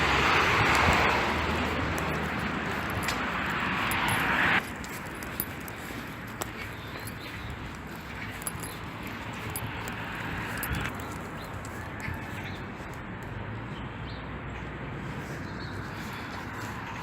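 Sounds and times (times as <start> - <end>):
birds calling: 5.2 - 17.0.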